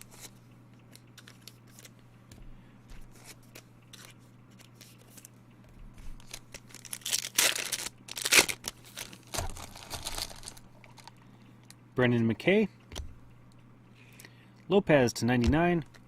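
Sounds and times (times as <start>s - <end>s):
foil wrapper crackling: 6.1s - 11.2s.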